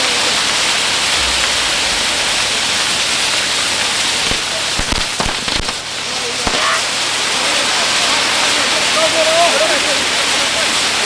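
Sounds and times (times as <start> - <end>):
fireworks hissing: 0.0 - 8.7
sharp firework cracks: 3.5 - 7.2.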